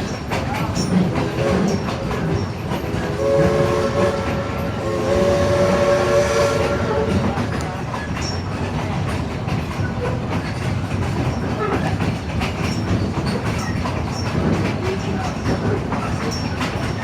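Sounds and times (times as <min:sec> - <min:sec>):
train cars rumbling on track: 0:00.0 - 0:17.0
wheels clicking over rails: 0:07.2 - 0:17.0.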